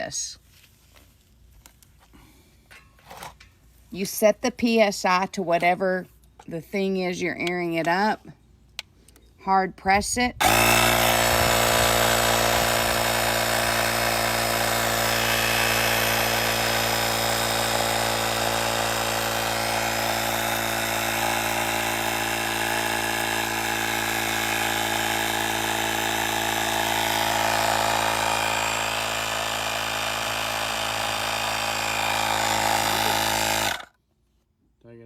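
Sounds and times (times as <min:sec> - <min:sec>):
air compressor pumping: 0:10.4 - 0:33.9.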